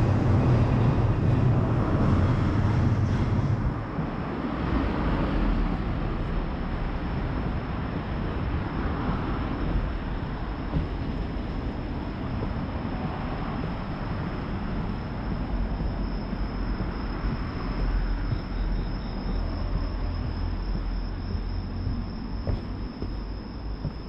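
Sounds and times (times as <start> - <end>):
road traffic rumble: 0.0 - 24.0
insect trill: 4.8 - 24.0.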